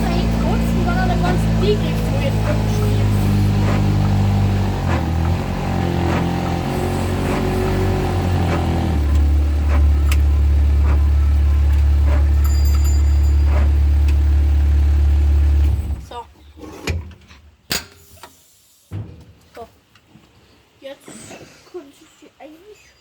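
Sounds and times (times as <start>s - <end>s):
vehicle engine running: 0.0s - 16.1s.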